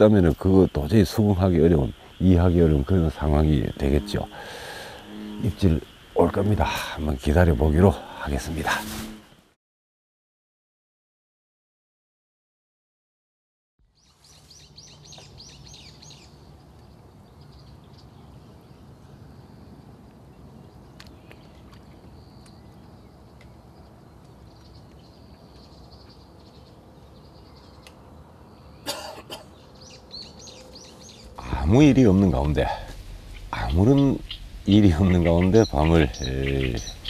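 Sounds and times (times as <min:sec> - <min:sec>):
birds chirping: 0:00.0 - 0:09.4, 0:13.8 - 0:37.0
faint steady low background: 0:15.9 - 0:37.0.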